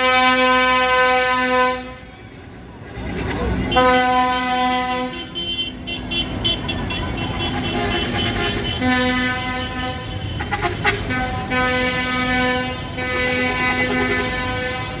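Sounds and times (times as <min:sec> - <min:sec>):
vehicle horns honking: 0:00.0 - 0:02.1, 0:03.6 - 0:15.0.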